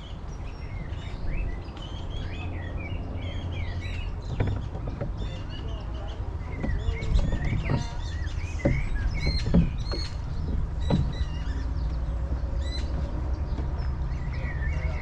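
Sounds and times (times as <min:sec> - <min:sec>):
birds chirping: 0:00.0 - 0:15.0
wind rumbling on microphone: 0:00.0 - 0:15.0
oars knocking: 0:00.8 - 0:15.0.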